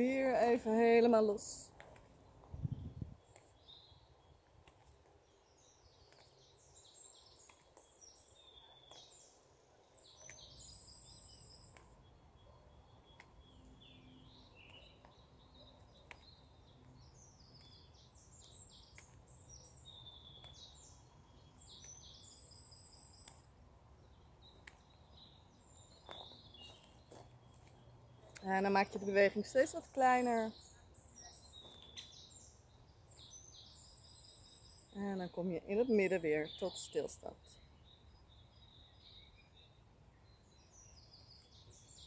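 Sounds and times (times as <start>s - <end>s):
bird chirps and trills: 24.0s - 42.0s.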